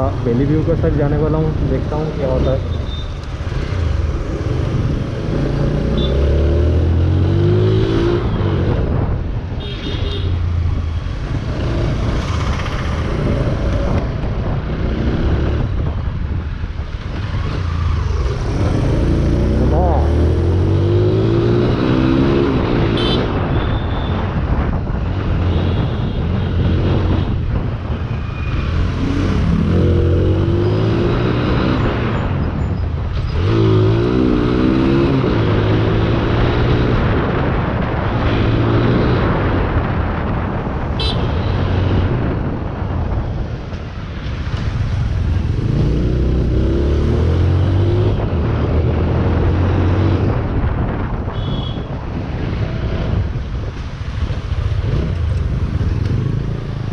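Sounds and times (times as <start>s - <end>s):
wind and road noise: 0.0s - 56.9s.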